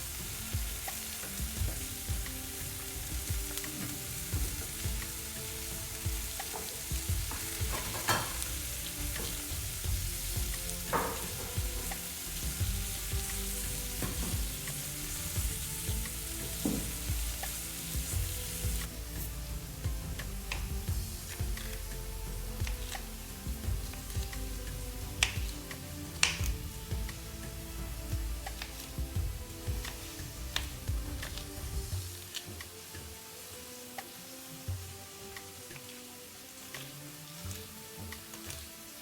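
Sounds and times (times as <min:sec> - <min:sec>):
utensil scraping a pan: 0:00.0 - 0:21.9
food sizzling in a pan: 0:00.0 - 0:39.0.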